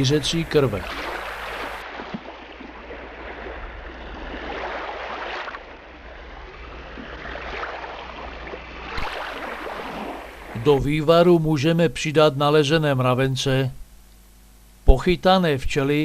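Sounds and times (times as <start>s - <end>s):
seawater washing and rushing: 0.0s - 10.9s.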